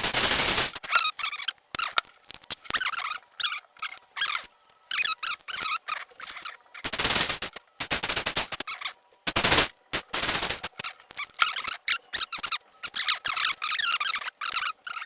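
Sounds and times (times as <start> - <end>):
high wavering squeaks: 0.8 - 2.0, 2.6 - 6.9, 8.6 - 9.0, 10.8 - 15.0.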